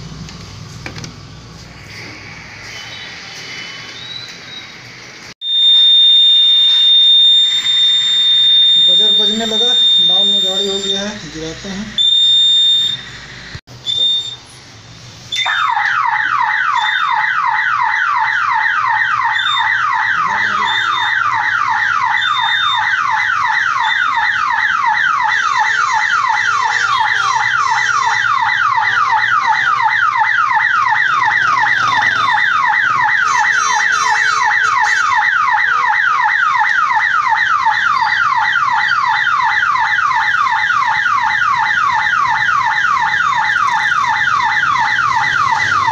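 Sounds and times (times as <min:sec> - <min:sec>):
gate buzzer beeping: 0:05.4 - 0:14.4
level crossing warning siren: 0:05.4 - 0:14.4, 0:15.3 - 0:45.9.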